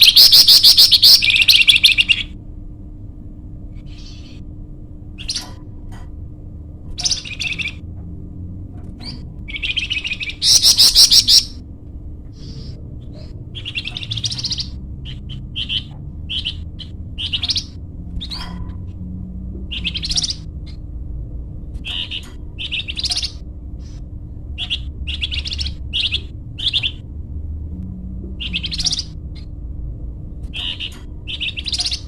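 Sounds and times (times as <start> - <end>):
songbird trilling: 0.0 - 2.4, 5.2 - 5.6, 6.9 - 7.8, 9.0 - 11.6, 12.4 - 18.8, 19.7 - 20.8, 21.8 - 24.0, 24.6 - 27.0, 28.4 - 29.5, 30.5 - 32.0
low hum: 0.0 - 32.0.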